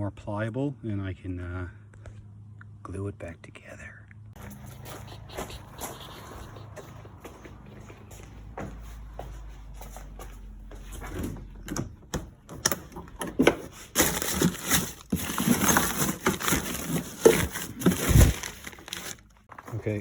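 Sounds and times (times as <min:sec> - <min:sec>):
rustling and crinkling: 0:12.9 - 0:20.0.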